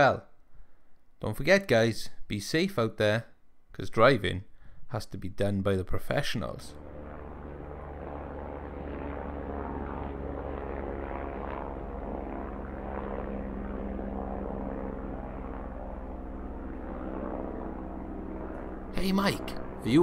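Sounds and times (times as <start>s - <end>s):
helicopter engine and rotor: 6.8s - 20.0s.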